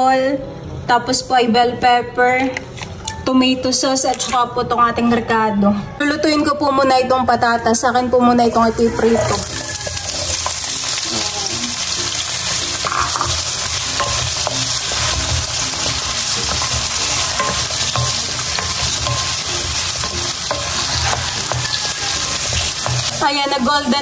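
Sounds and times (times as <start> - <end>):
potatoes sizzling in hot oil: 8.4 - 24.0
wooden spatula scraping a pan: 13.3 - 23.3.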